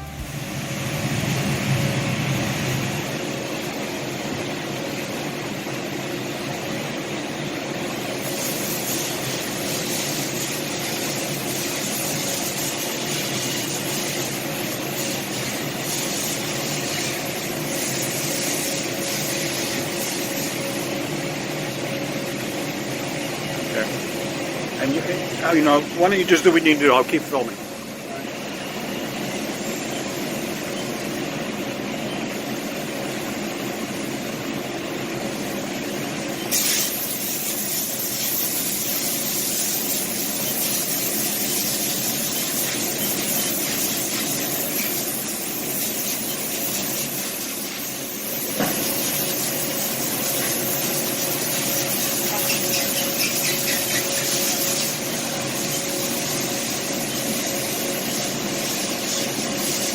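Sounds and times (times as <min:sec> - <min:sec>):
machine mechanical whir: 0:00.0 - 0:59.9
steady machine whine: 0:00.0 - 0:59.9
loud hiss: 0:08.0 - 0:21.1, 0:36.5 - 0:59.9.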